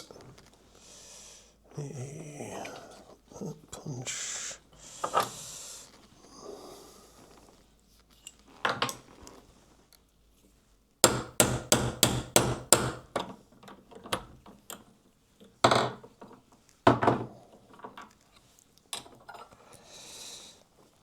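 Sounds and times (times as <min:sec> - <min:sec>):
hammer tapping metal punch: 0:11.0 - 0:13.2.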